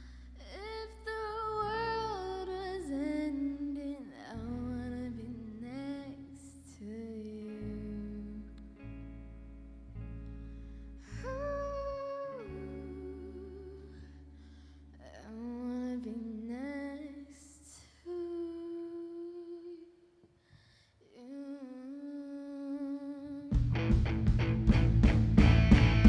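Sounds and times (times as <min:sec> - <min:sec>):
soft guitar and bass chords: 0:00.0 - 0:17.0, 0:23.5 - 0:26.0
full band with drums: 0:23.6 - 0:26.0.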